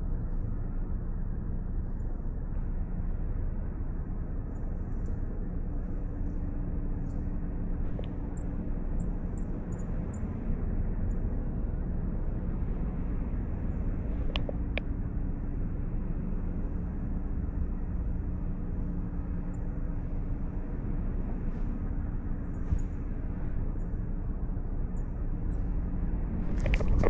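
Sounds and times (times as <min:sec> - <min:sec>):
low rumble: 0:00.0 - 0:27.0.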